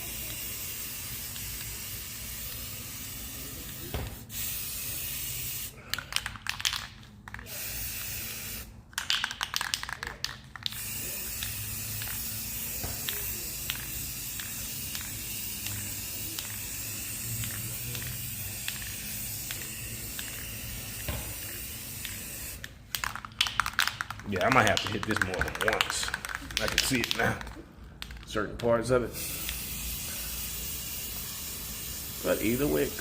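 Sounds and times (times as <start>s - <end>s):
aerosol spray can hissing: 0.0s - 5.8s, 7.4s - 8.7s, 10.7s - 23.7s, 29.1s - 33.0s.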